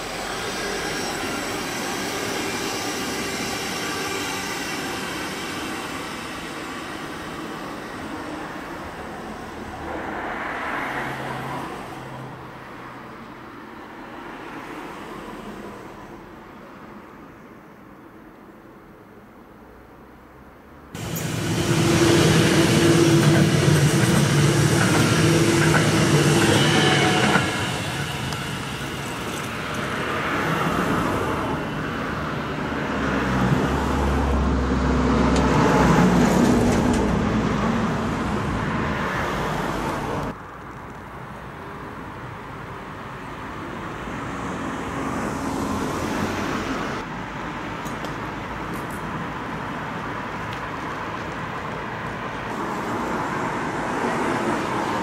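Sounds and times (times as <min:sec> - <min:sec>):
electric train passing: 0:00.0 - 0:12.4, 0:21.0 - 0:40.4, 0:52.0 - 0:55.0
rail and road traffic rumble: 0:00.0 - 0:55.0.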